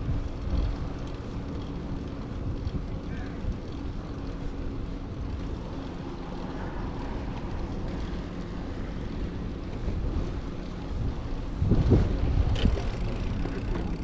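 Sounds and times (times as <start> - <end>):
wind on microphone: 6.8 - 14.0.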